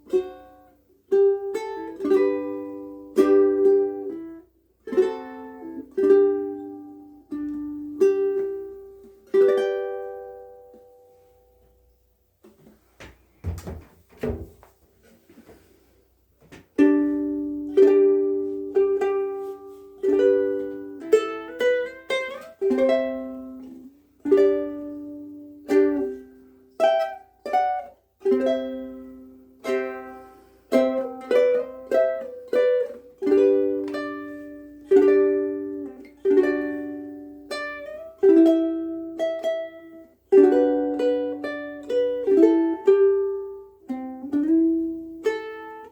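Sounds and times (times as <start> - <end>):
ukulele played fingerstyle: 0.0 - 45.9
knocks on ukulele: 13.0 - 14.6.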